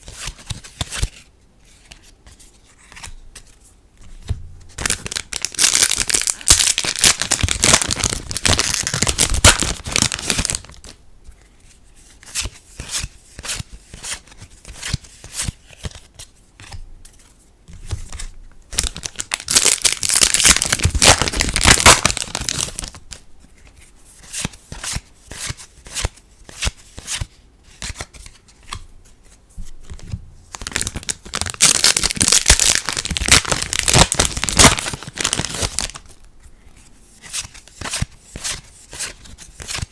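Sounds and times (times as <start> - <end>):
foil packs tearing and crinkling: 4.8 - 10.8, 18.8 - 23.0, 30.6 - 36.1.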